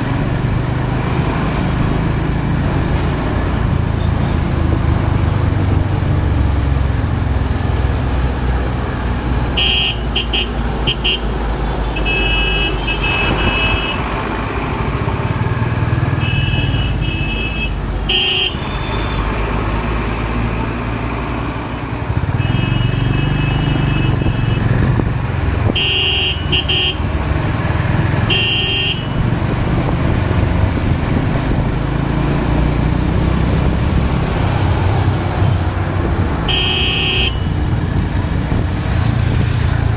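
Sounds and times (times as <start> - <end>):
car horns honking: 9.5 - 14.1, 16.1 - 19.3, 22.2 - 24.7, 25.6 - 27.1, 28.2 - 29.2, 36.4 - 37.8.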